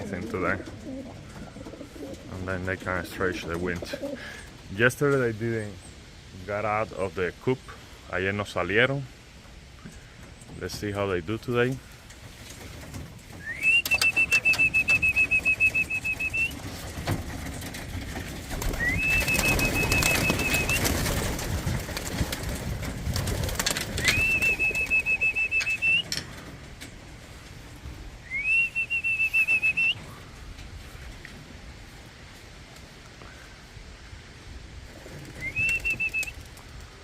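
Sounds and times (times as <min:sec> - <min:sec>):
trilling whistle blasts: 0:13.4 - 0:16.6, 0:18.8 - 0:20.9, 0:24.0 - 0:26.1, 0:28.2 - 0:30.0, 0:35.4 - 0:36.3.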